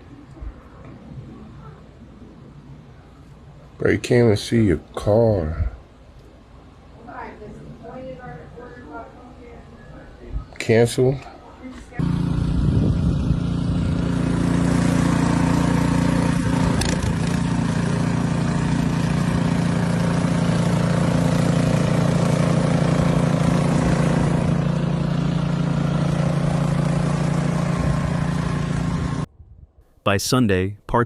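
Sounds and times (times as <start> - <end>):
engine running steadily: 12.0 - 29.3.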